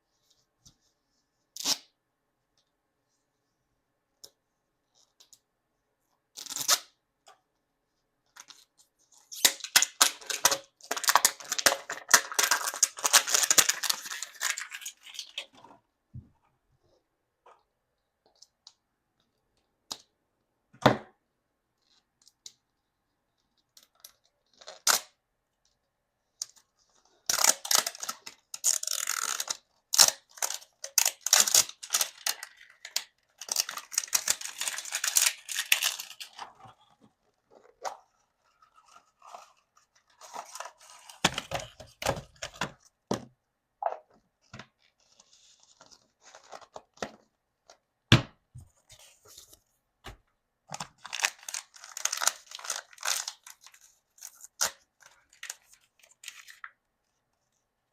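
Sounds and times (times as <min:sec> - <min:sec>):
packaging being torn and crinkled: 0:09.4 - 0:15.5, 0:27.3 - 0:36.5, 0:50.9 - 0:56.7.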